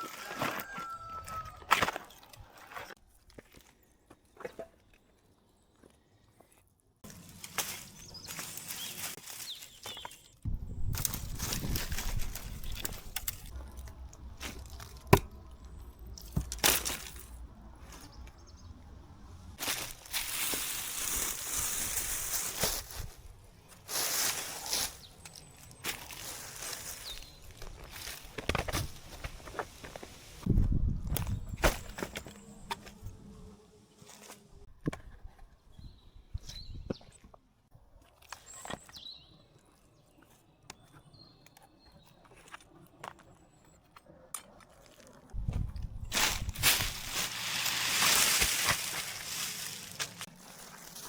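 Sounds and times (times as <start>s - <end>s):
dry leaves and twigs crunching: 0.0s - 3.8s, 7.0s - 34.6s, 44.7s - 51.0s
twigs snapping: 7.1s - 17.5s, 45.4s - 51.0s.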